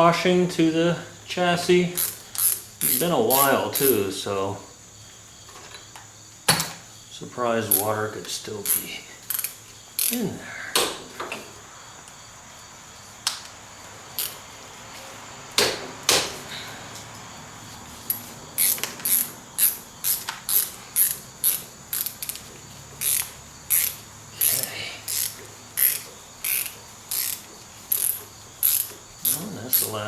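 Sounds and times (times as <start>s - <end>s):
ratchet wrench clicking: 2.0s - 4.0s, 8.6s - 10.2s, 14.2s - 14.4s, 18.1s - 30.0s.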